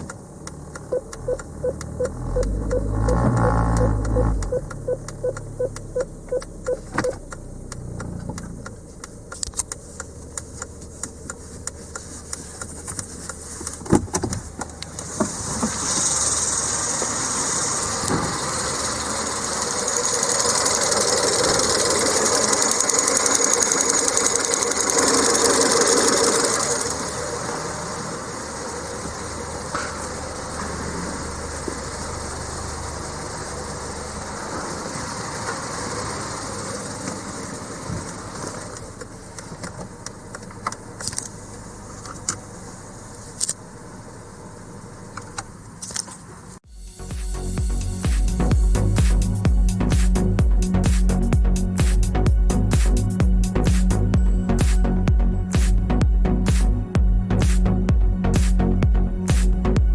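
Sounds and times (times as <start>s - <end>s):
starter sharp clicks: 0.0s - 15.1s
car engine starting and idling: 0.0s - 59.9s.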